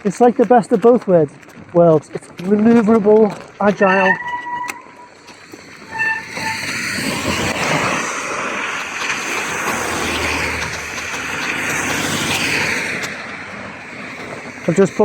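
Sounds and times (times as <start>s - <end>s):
vehicle engine hum: 0.0s - 15.0s
wet road noise: 0.0s - 15.0s
wind hiss: 5.3s - 15.0s.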